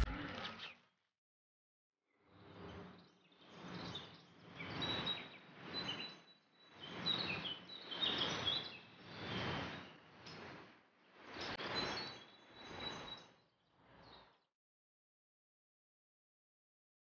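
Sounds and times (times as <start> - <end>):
small birds chirping: 3.0 - 10.5.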